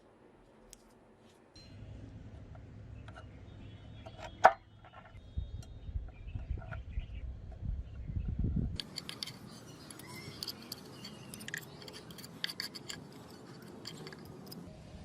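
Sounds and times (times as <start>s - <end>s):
light scraping: 8.8s - 14.7s
sharp clicks of metal parts: 8.8s - 14.7s.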